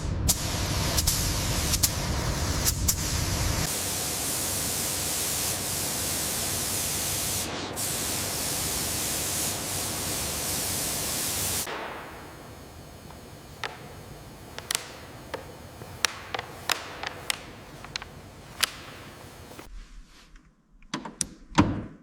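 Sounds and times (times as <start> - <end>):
loud hiss of air jet: 0.0 - 19.7
sharp clicks: 13.1 - 19.7.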